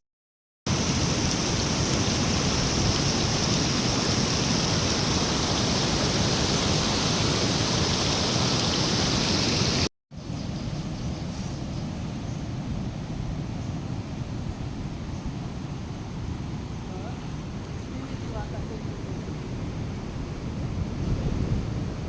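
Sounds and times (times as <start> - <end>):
water rushing: 0.7 - 9.9.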